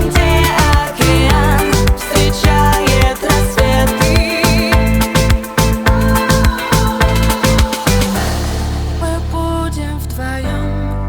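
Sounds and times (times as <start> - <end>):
upbeat afrobeat-like music: 0.0 - 10.6.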